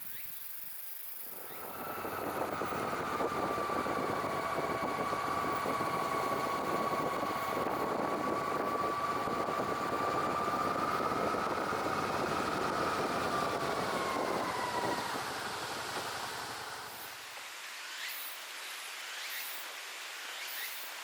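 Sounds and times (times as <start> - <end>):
passing vehicle engine drone: 1.4 - 17.1.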